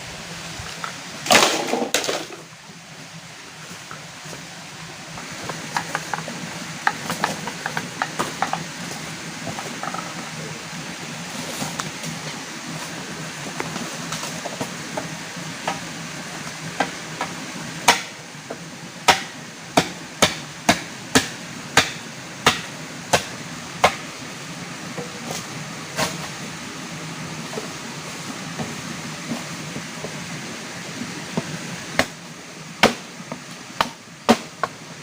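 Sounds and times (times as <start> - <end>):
steady rushing noise: 0.0 - 35.0
sharp hammering or chopping blows: 17.8 - 18.1, 19.1 - 24.0, 32.8 - 33.1.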